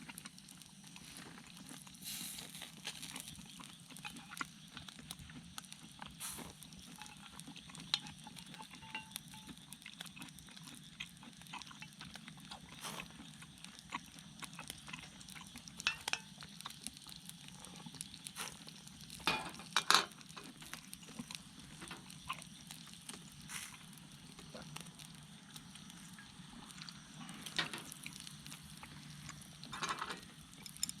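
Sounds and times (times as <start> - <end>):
small objects clicking: 29.6 - 31.0.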